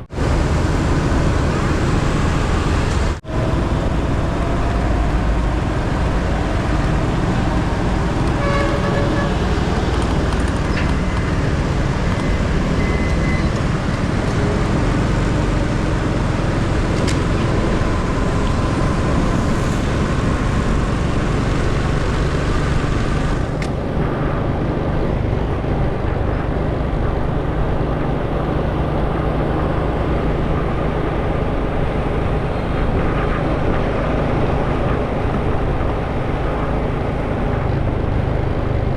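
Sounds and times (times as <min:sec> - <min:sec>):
motorcycle engine: 0:00.0 - 0:24.5
wind rush: 0:00.0 - 0:38.9
horn toot: 0:05.9 - 0:10.8.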